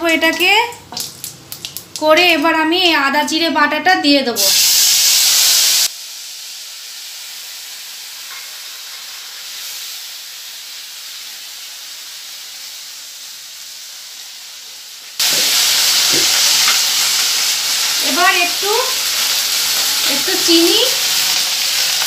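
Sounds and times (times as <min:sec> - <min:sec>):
paste sizzling in hot oil: 0:04.4 - 0:22.0.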